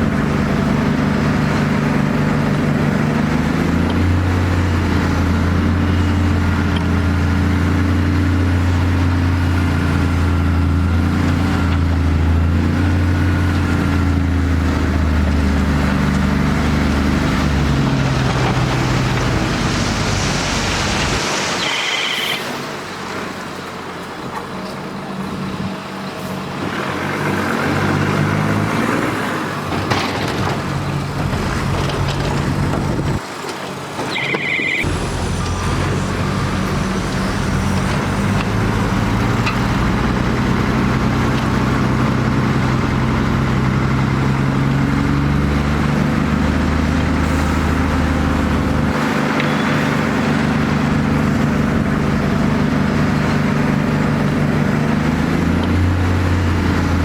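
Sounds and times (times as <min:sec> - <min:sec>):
heavy diesel machinery engines: 0:00.0 - 0:57.0
brief high tone: 0:34.1 - 0:35.0.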